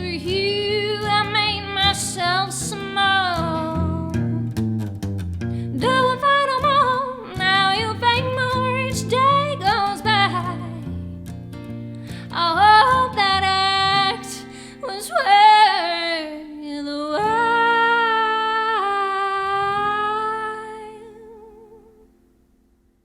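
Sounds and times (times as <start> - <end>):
woman singing long notes: 0.0 - 4.4, 5.8 - 10.8
acoustic guitar: 0.0 - 23.0.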